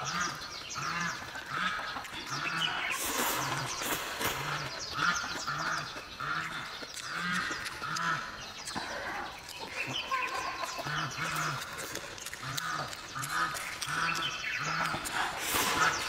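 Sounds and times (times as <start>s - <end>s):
close-up chewing: 0.0s - 16.0s
wet mouth clicks and smacks: 4.8s - 16.0s.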